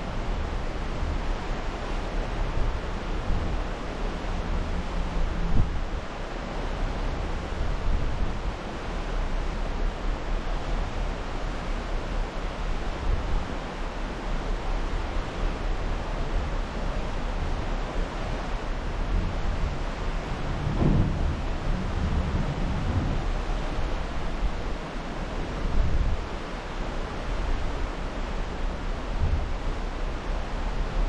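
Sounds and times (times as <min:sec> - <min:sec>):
water rushing past ship: 0:00.0 - 0:31.0
wind rushing: 0:19.1 - 0:24.7.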